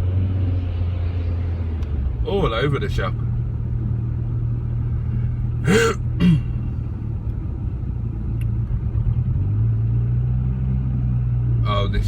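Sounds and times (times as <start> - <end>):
car engine humming: 0.0 - 12.0.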